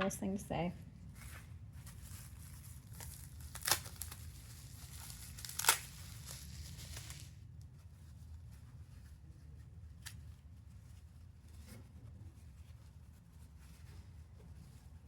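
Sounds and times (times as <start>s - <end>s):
wrapping crinkling: 1.1s - 7.4s
wrapping ripping: 1.8s - 7.4s.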